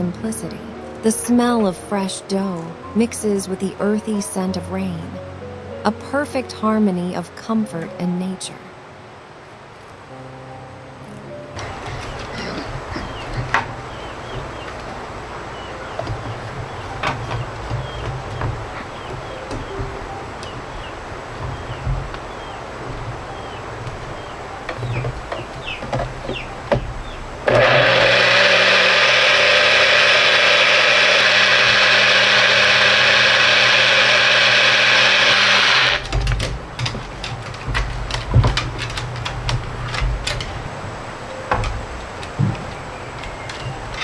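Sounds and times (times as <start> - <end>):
electric blender running: 27.4 - 36.1.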